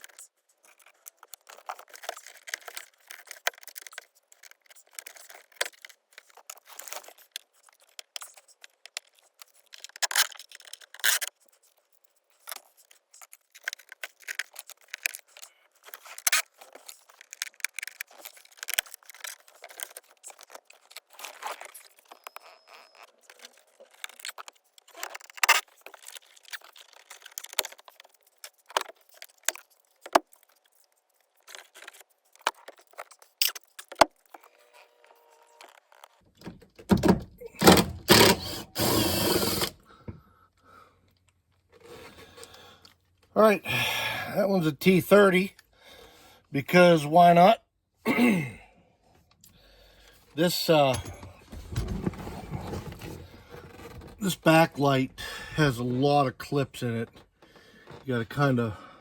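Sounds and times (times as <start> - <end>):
hand tools and screws rattling: 36.3 - 39.8, 50.8 - 54.2.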